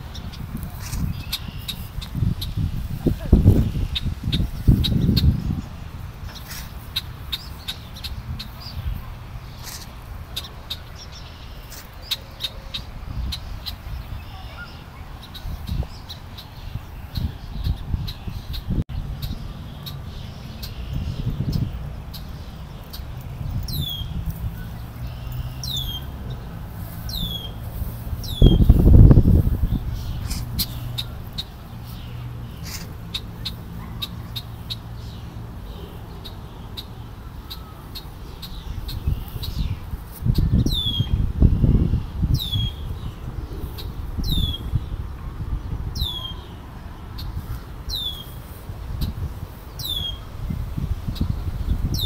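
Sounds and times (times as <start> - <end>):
low microphone rumble: 12.9 - 34.3
bird alarm calls: 30.0 - 35.2
bird giving sharp calls: 32.6 - 34.9.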